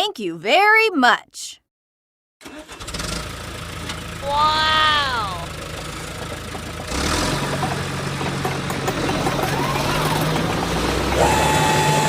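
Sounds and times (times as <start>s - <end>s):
engine running with low hum: 2.6s - 12.0s.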